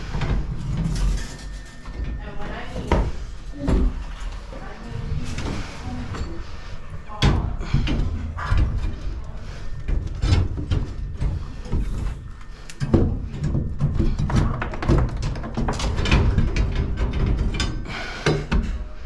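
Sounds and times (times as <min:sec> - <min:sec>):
hard materials knocking and scraping: 0:05.0 - 0:19.0.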